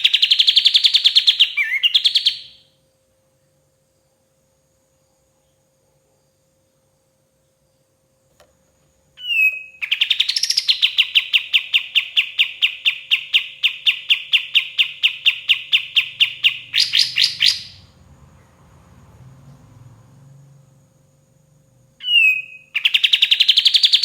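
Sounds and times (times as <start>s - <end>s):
bulbul singing: 0.0s - 2.6s, 9.2s - 18.0s, 22.0s - 24.0s.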